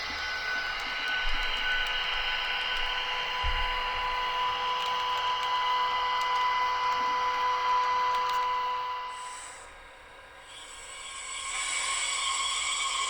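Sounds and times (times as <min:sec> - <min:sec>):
model train motor whine: 0:00.0 - 0:09.8, 0:10.4 - 0:13.0
rolling hiss of wheels: 0:10.5 - 0:13.0.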